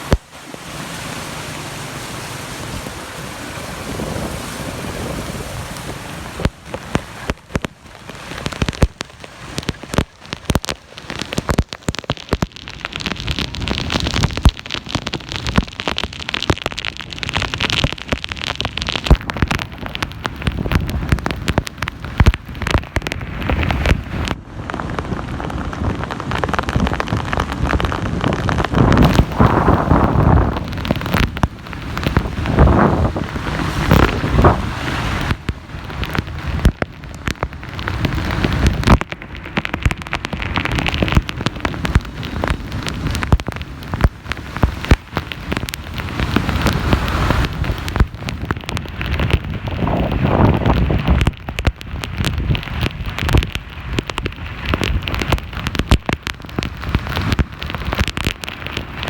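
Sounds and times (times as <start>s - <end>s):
heavy rain hissing: 0.0s - 11.6s, 20.9s - 51.3s
sharp raindrops striking close: 0.0s - 59.0s.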